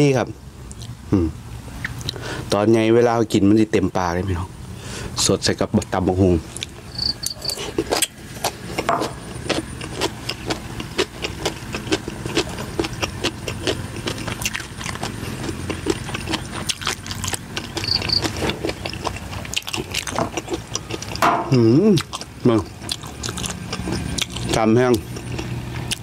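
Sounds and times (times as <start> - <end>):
person chewing and lip-smacking: 0.7 - 1.0, 1.8 - 2.2, 6.5 - 26.0
crickets chirping: 6.8 - 7.7, 17.6 - 18.4.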